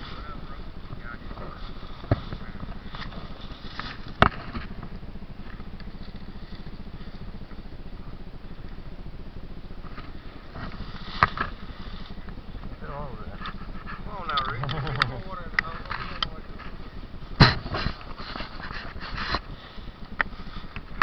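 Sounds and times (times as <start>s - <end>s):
dirt bike engine idling: 0.0s - 21.0s
sharp knocks: 17.4s - 18.0s.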